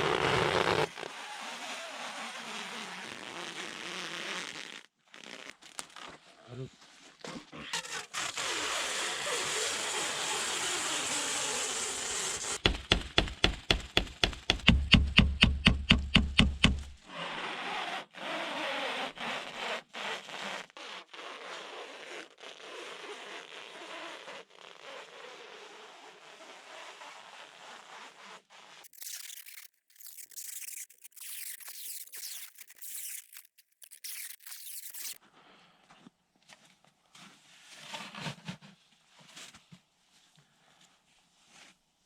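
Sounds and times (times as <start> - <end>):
knocks with dull thuds: 12.6 - 17.0
rasping on wood: 12.6 - 17.0
irregular scraping: 28.2 - 35.2.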